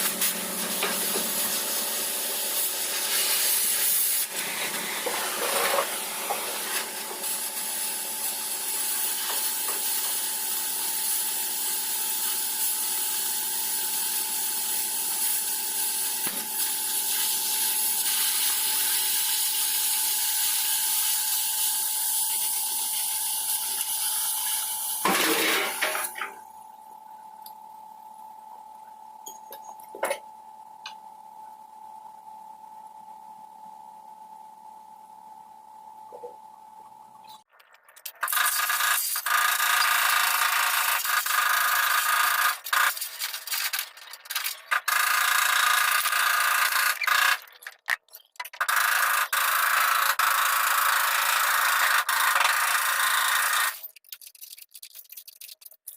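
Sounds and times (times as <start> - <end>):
workshop tool hissing: 0.0 - 26.2.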